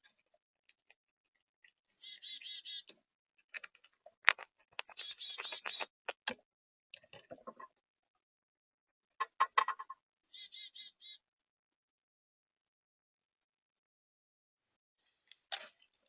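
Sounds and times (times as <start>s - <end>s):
harsh bird calls: 1.9s - 2.9s, 4.8s - 5.9s, 10.2s - 11.2s
birds tapping and knocking: 3.5s - 6.4s, 9.2s - 10.0s.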